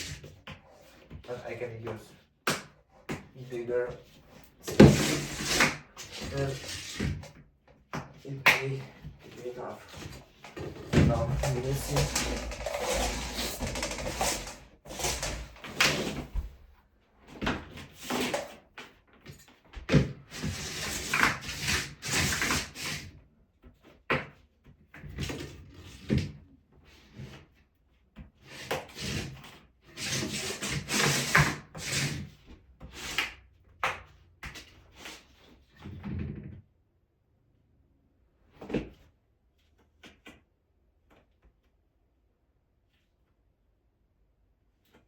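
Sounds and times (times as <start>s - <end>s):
rubbing and scraping on plastic: 0.0s - 24.0s, 24.7s - 33.8s.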